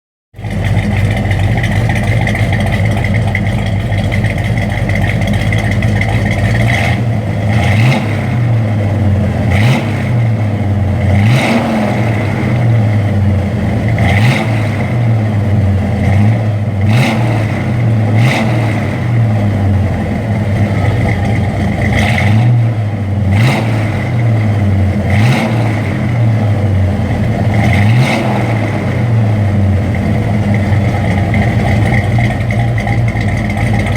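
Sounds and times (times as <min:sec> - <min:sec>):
vee eight engine idling and revving: 0:00.3 - 0:33.9.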